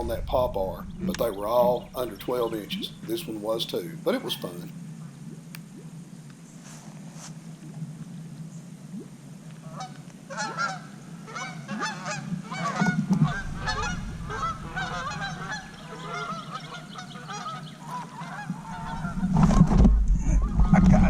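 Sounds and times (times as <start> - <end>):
flock of birds calling: 0.0 - 4.7, 9.8 - 19.6
low rumble: 0.0 - 6.0, 12.4 - 18.0, 18.6 - 21.0.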